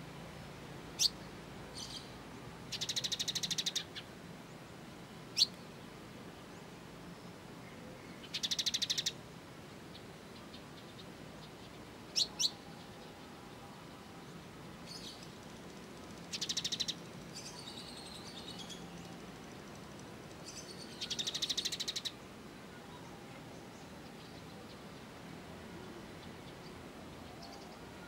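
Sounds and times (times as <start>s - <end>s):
sparrows chirping: 0.9s - 5.7s, 6.4s - 9.2s, 9.8s - 25.2s
sparrows rattling chatter: 1.0s - 2.1s, 2.7s - 4.0s, 8.1s - 9.2s, 14.8s - 22.1s.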